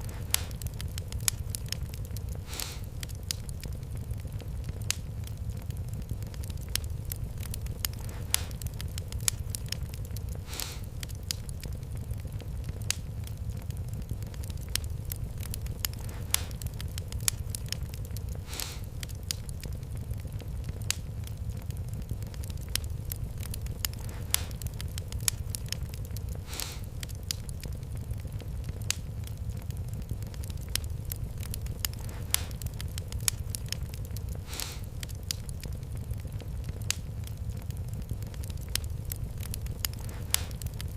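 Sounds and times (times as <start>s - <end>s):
fire hissing: 0.0s - 40.9s
low rumble of flames: 0.0s - 40.9s
wood fire crackling and popping: 0.0s - 40.9s
short hiss: 26.5s - 26.9s.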